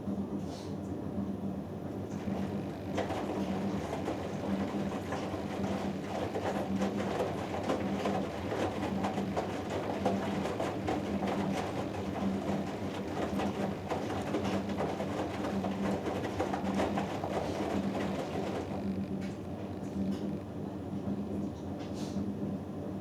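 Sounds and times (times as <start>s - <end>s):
laundry and water sloshing: 2.0s - 21.6s
pulsing motor hum: 2.2s - 7.5s, 12.5s - 21.2s
washing machine drum turning: 2.2s - 20.6s.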